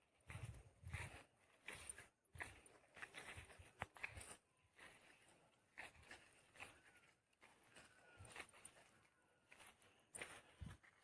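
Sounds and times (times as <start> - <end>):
faint footsteps: 0.0 - 11.0.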